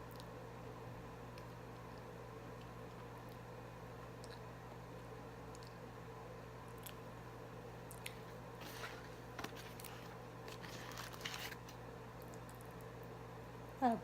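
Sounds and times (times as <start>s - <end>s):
soft crunches: 7.9s - 11.8s.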